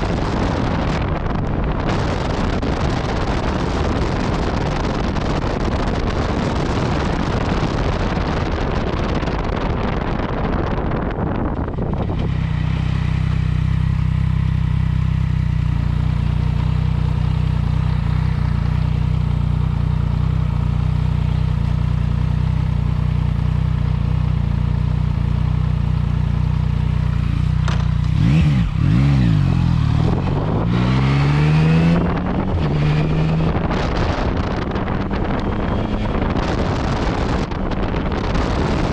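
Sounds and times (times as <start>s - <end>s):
wind rushing over microphone: 0.0s - 23.6s, 26.8s - 38.9s
motorcycle engine idling: 9.4s - 28.2s.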